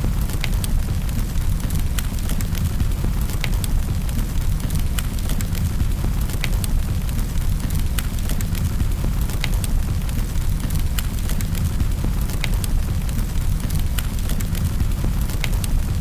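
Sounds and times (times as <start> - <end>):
low rumble of flames: 0.0 - 16.0
wood fire crackling: 0.0 - 16.0.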